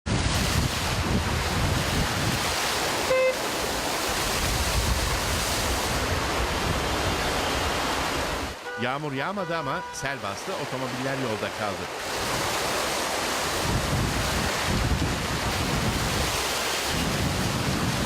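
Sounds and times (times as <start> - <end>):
floodwater rushing across street: 0.1 - 18.0
car horn beep: 3.0 - 3.5, 8.6 - 10.2.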